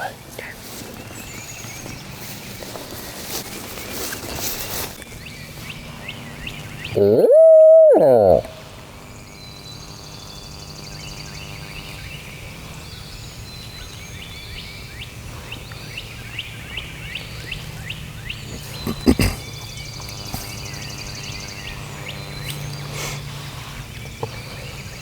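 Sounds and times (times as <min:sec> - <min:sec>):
songbirds singing: 0:00.0 - 0:25.0
owl locator call: 0:06.8 - 0:08.8.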